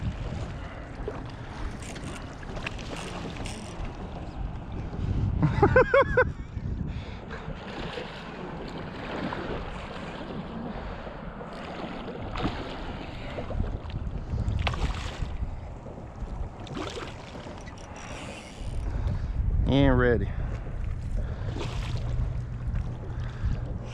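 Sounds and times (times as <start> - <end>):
water swishes: 0.0 - 19.6, 20.2 - 23.9
wind buffeting microphone: 0.0 - 23.9
low rumble: 3.6 - 7.6, 18.6 - 23.9.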